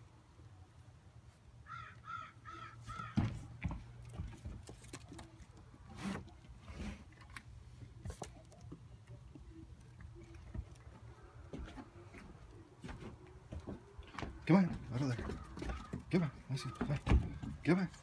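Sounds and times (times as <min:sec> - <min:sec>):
crow cawing: 0:01.6 - 0:03.3, 0:15.3 - 0:16.0
knocks and thumps: 0:02.9 - 0:04.9, 0:12.8 - 0:17.8.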